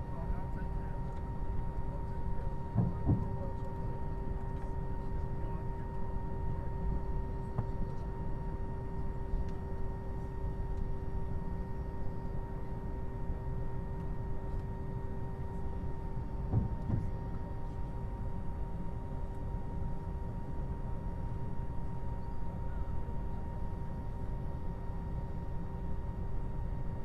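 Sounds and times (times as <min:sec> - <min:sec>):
low airport rumble: 0:00.0 - 0:27.0
brief thump: 0:16.5 - 0:17.1.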